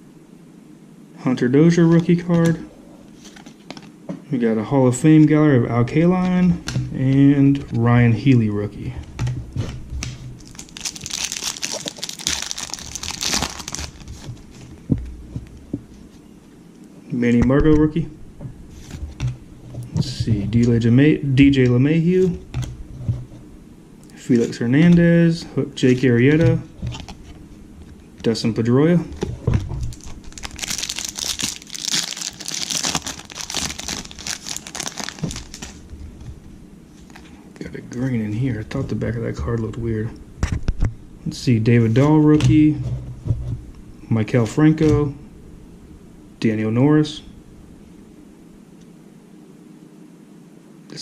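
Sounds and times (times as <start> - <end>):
foil wrapper crinkling: 10.4 - 14.7, 29.8 - 36.3.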